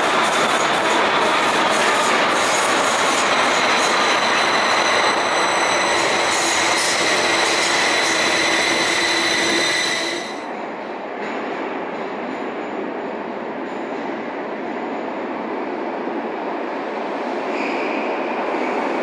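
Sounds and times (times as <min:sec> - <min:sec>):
train rumble in tunnel: 0:00.0 - 0:19.0
high-pitched wheel squeal: 0:01.9 - 0:10.5.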